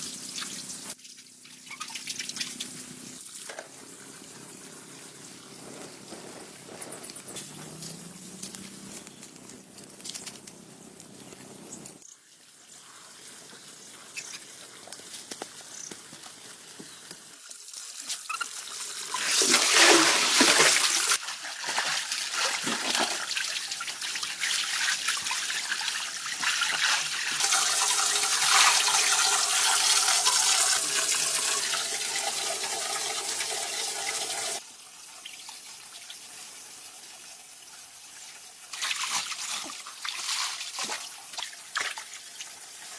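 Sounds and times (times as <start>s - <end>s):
water trickling and splashing: 0.0s - 4.2s, 17.2s - 34.6s, 38.7s - 42.9s.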